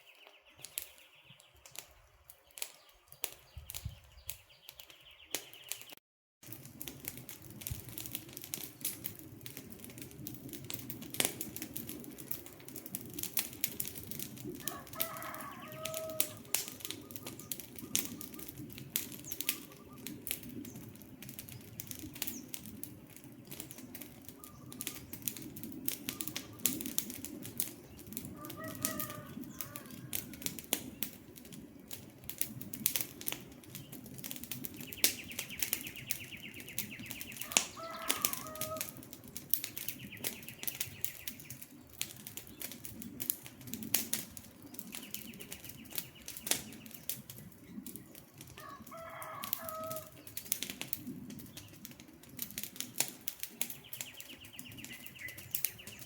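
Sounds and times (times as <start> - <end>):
campfire crackling and popping: 0.0 - 56.0
bird calling: 14.7 - 18.6, 19.2 - 20.2, 26.0 - 26.8, 28.3 - 30.1, 34.8 - 39.0.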